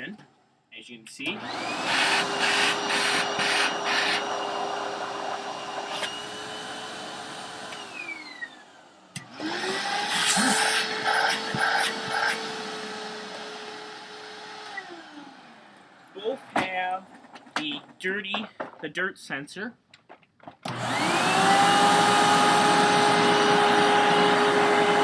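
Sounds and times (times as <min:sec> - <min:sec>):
vacuum cleaner motor running: 0:01.3 - 0:16.1, 0:20.7 - 0:25.0.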